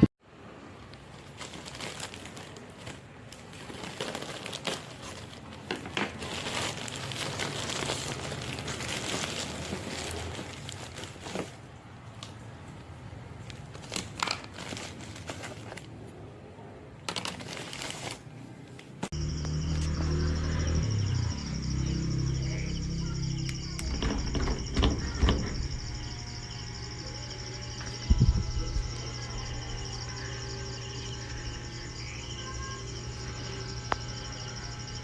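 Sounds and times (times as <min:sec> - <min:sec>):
plastic packaging crinkling: 0:00.8 - 0:12.4, 0:13.4 - 0:16.1, 0:17.0 - 0:18.4.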